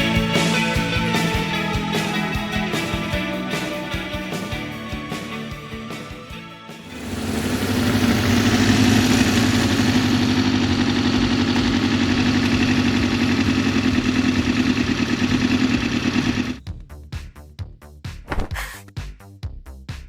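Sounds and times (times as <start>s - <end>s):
motorcycle engine running: 0.0s - 5.8s, 6.8s - 16.9s.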